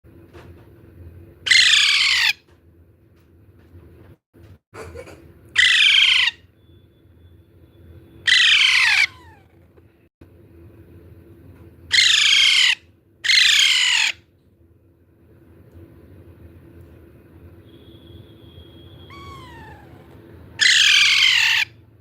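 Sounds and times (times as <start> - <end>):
baby parrot calling: 1.4 - 2.4, 5.5 - 6.5, 8.2 - 9.6, 11.9 - 14.3, 18.5 - 21.8.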